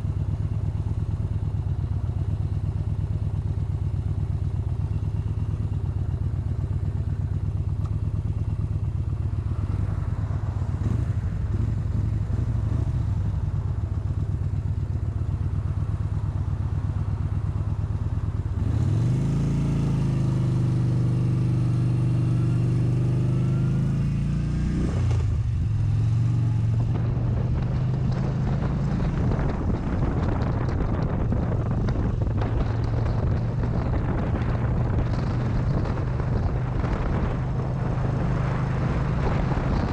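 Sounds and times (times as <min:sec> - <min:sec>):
motorcycle engine revving: 0:04.4 - 0:16.5, 0:18.4 - 0:39.9
wind noise: 0:26.2 - 0:39.9.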